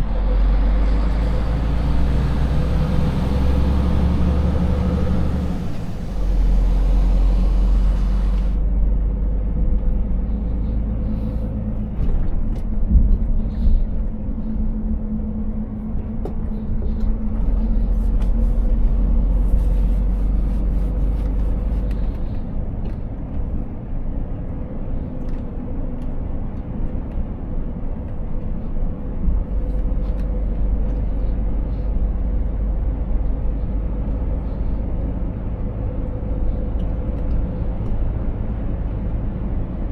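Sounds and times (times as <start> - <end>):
road noise: 0.0 - 39.9
truck diesel engine cruising: 0.0 - 39.9
hiss: 2.0 - 8.6.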